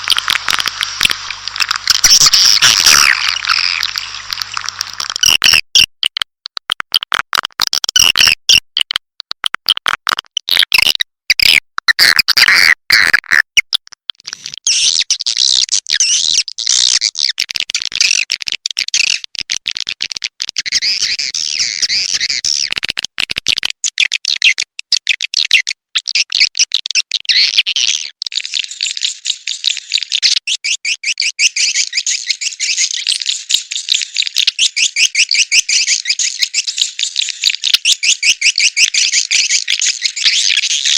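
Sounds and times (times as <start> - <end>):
swiftlet chirping and twittering: 0.0 - 5.2.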